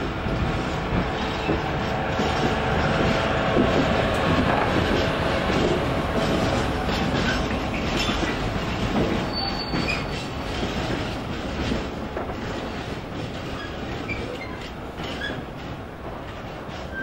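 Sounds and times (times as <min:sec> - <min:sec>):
high wheel squeal: 0:09.2 - 0:10.4.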